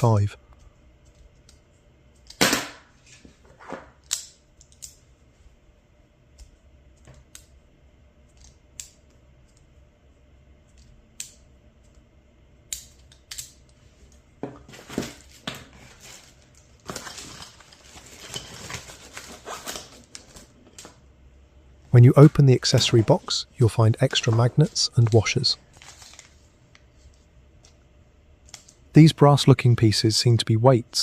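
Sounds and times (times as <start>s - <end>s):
rustling and clatter of handling: 14.0s - 21.0s.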